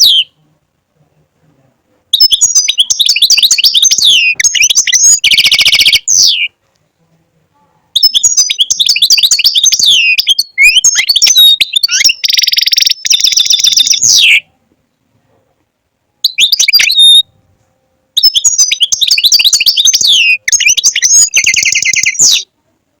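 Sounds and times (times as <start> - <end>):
goldfinch twittering song: 2.2 - 6.5, 8.0 - 14.4, 16.2 - 17.2, 18.2 - 22.4.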